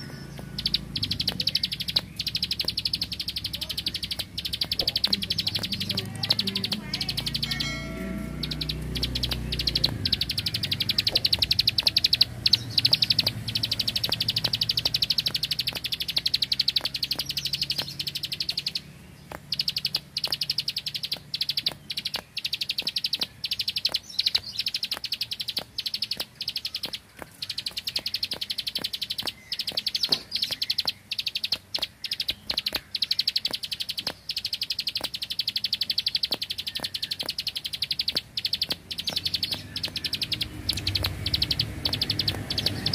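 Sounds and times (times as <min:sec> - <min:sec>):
bird singing rapid clicking song: 0:00.0 - 0:42.9.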